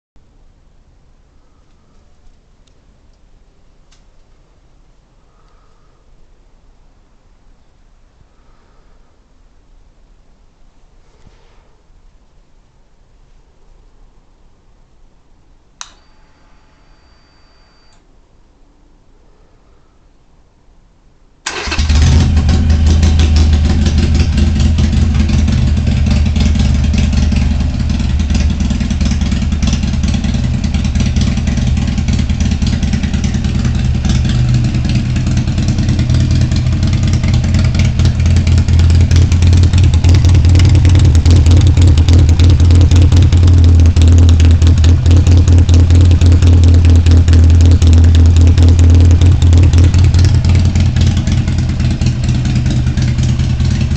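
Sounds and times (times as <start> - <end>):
motorcycle engine starting and idling: 21.4 - 53.9.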